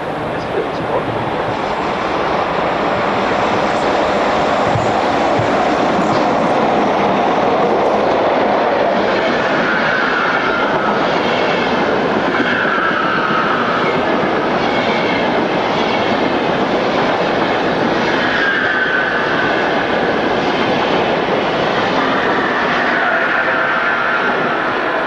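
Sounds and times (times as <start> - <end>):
train wheels rushing on rail: 0.0 - 25.0.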